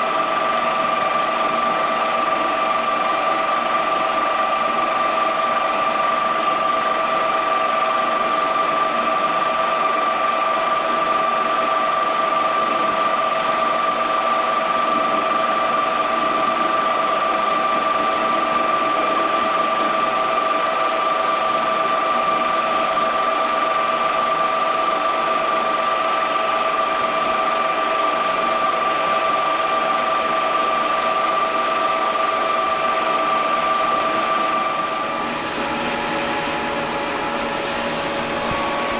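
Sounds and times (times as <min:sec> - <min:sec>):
mechanical hum: 0:00.0 - 0:38.9
machine whining: 0:33.4 - 0:38.9.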